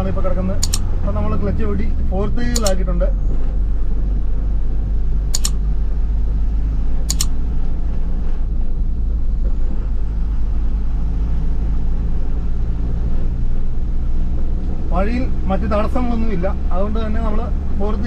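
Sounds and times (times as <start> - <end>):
vehicle engine and road rumble: 0.0 - 18.0
sharp double click: 0.6 - 0.9, 2.5 - 2.8, 5.3 - 5.6, 7.1 - 7.4.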